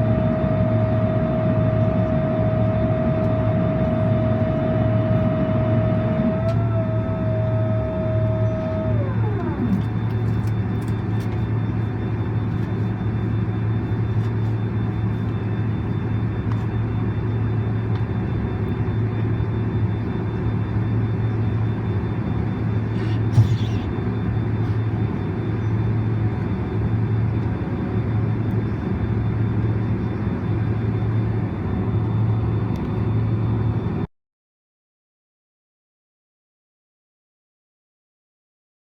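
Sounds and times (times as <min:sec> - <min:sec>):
high whine sliding down: 0:00.0 - 0:10.6
airliner cabin rumble: 0:00.0 - 0:34.1.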